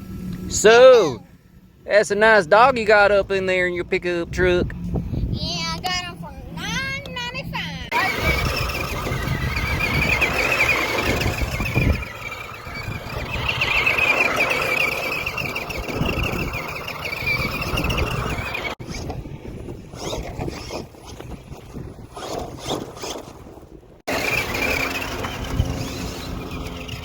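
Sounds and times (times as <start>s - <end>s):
radio-controlled car motor whining: 7.9s - 19.1s, 24.1s - 27.0s.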